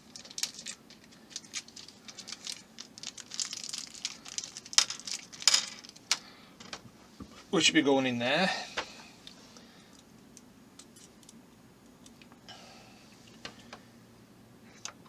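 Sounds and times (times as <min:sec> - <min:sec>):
small parts crinkling and rustling: 0:00.0 - 0:06.8.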